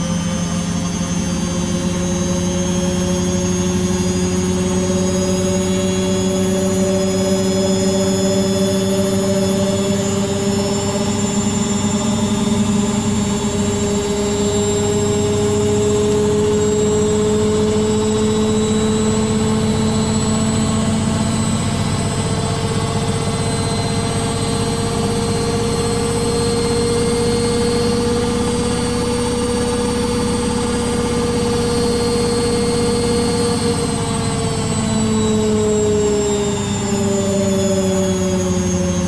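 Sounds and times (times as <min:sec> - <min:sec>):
washing machine spinning: 0:16.4 - 0:37.0.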